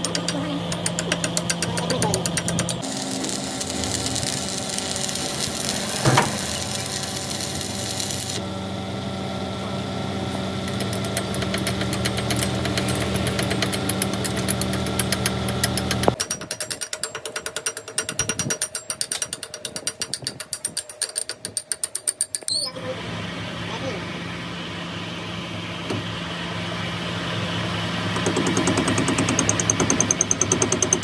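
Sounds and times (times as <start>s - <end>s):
machinery humming and rattling: 0.0s - 16.2s, 22.8s - 31.0s.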